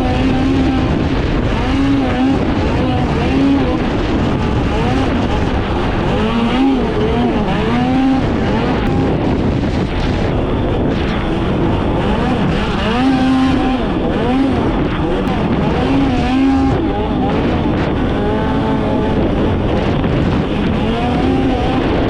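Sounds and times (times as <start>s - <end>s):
snowmobile engine revving: 0.0s - 22.0s
track and wind noise: 0.0s - 22.0s.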